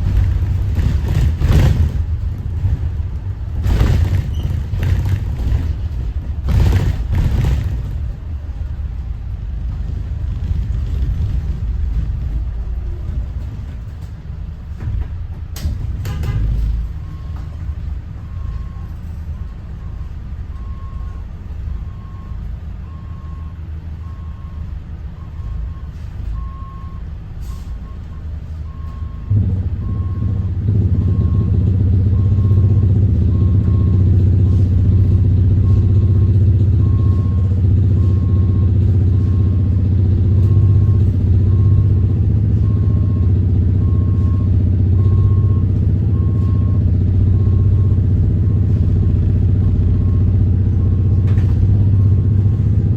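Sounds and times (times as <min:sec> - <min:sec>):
diesel engine idling: 0:00.0 - 0:52.9
reverse alarm beeping: 0:35.6 - 0:39.8, 0:40.4 - 0:48.8.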